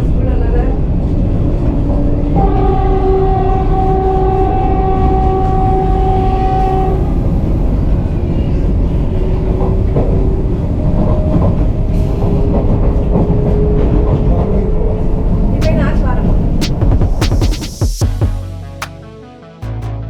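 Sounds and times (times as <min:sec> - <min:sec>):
train rumbling at speed: 0:00.0 - 0:17.2
train horn: 0:02.3 - 0:08.1.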